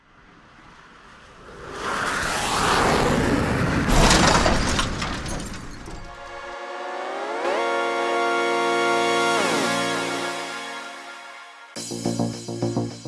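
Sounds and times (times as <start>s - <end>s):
rush of noise with crash: 0.9s - 6.6s.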